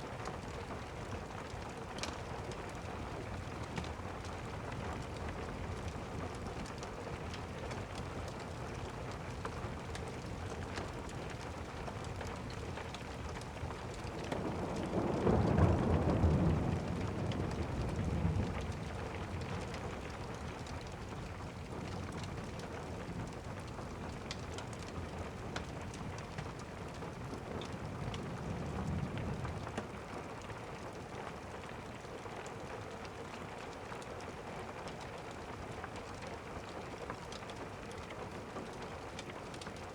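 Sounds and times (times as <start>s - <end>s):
steady rain: 0.0s - 39.9s
thunder rumbling: 14.1s - 20.5s.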